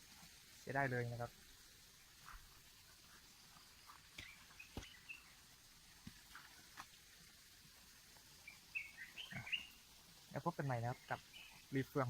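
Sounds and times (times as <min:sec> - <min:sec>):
faint bird chirps: 0:03.0 - 0:05.5, 0:08.4 - 0:09.9, 0:10.6 - 0:11.9.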